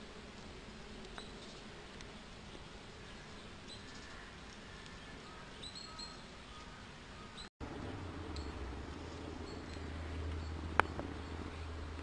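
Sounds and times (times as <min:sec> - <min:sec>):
small birds chirping: 0:01.0 - 0:12.0.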